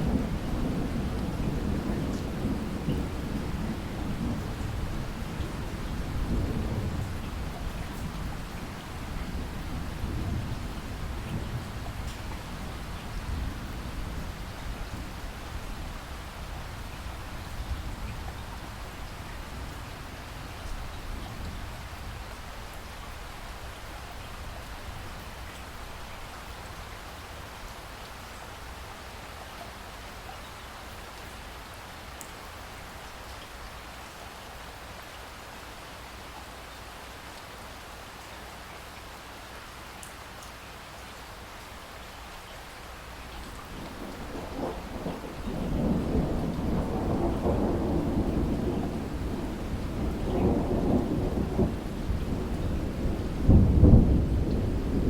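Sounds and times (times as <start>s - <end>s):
rain falling: 0.0s - 55.0s
thunder rumbling: 43.6s - 55.0s.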